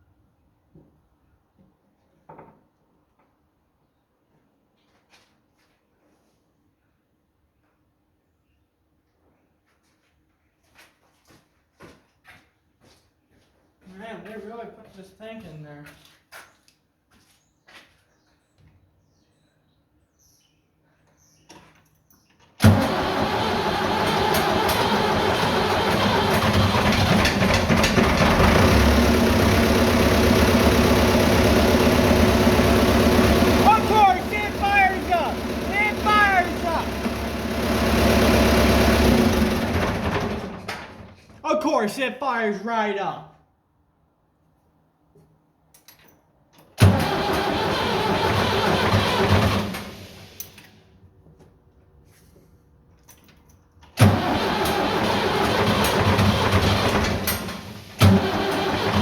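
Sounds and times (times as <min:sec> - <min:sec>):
engine cranking on starter: 0:22.6 - 0:41.4, 0:46.8 - 0:50.8, 0:53.9 - 0:59.0
tractor engine idling: 0:22.7 - 0:41.0, 0:46.9 - 0:50.4, 0:54.0 - 0:59.0.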